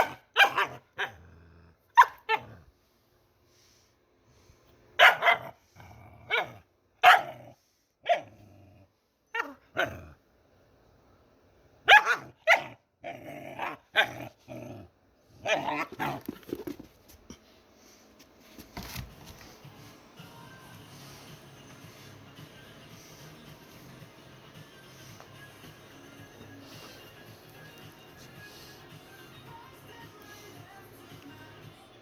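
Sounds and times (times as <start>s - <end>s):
dog barking: 0.0s - 1.2s, 2.0s - 2.5s, 5.0s - 5.6s, 6.3s - 7.4s, 8.0s - 8.3s, 11.8s - 12.8s, 13.6s - 14.2s.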